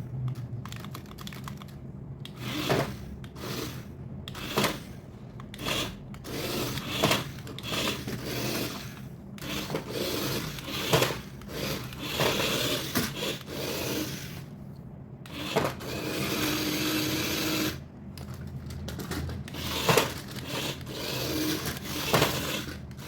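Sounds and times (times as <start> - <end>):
toy packaging rubbing and scraping: 5.6 - 14.5, 15.3 - 17.8, 19.3 - 23.0.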